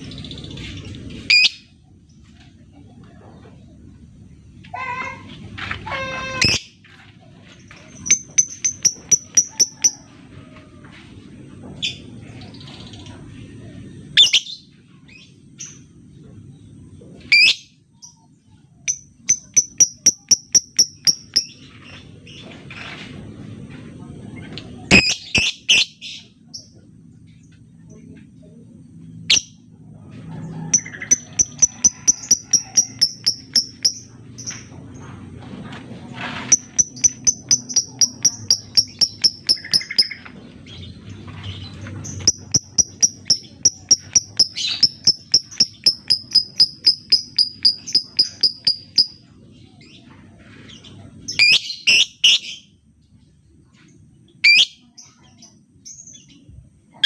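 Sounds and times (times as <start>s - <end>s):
sharp high chirps: 8.2s - 10.0s, 18.9s - 21.5s, 30.8s - 34.0s, 36.6s - 40.2s, 42.2s - 49.2s
lovebird shrill calls: 42.2s - 49.2s.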